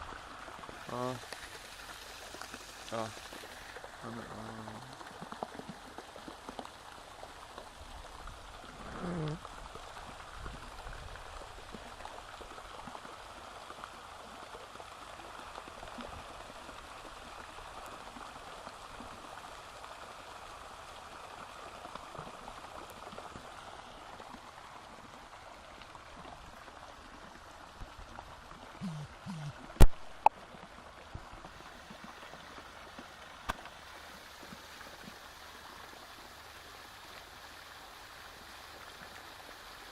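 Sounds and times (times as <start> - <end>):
running water rushing: 0.0 - 39.9
brief pitched sound: 28.8 - 30.0.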